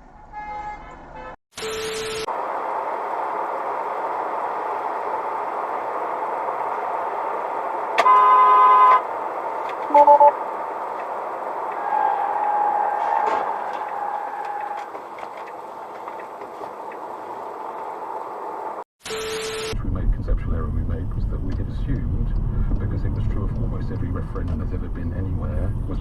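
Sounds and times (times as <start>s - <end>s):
car horns: 0.0s - 2.3s, 6.4s - 16.8s
traffic noise: 0.0s - 26.0s.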